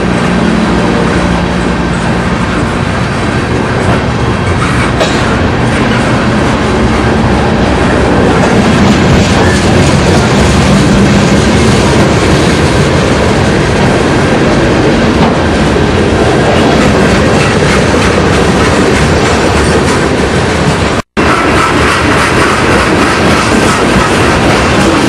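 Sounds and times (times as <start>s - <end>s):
train cars rumbling: 0.0s - 25.0s
wheels clacking over rail joints: 0.0s - 25.0s.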